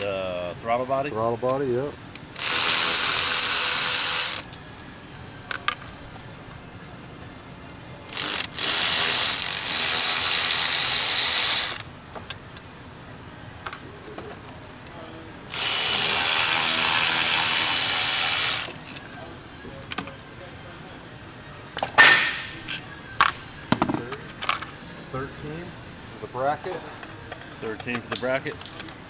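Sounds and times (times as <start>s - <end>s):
electric ratchet whirring: 2.2s - 4.8s, 8.1s - 12.6s, 15.5s - 19.0s.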